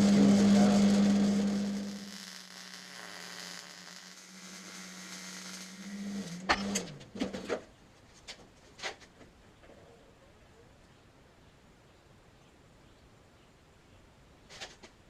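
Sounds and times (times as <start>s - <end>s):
electric motor humming: 0.0s - 7.0s.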